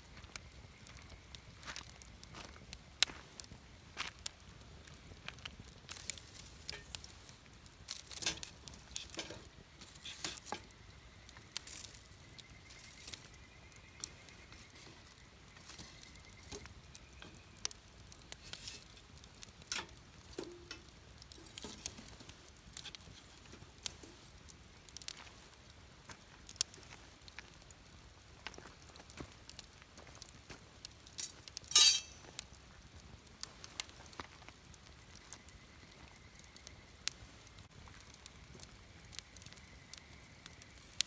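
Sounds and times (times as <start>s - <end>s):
campfire crackling and popping: 0.0s - 41.0s.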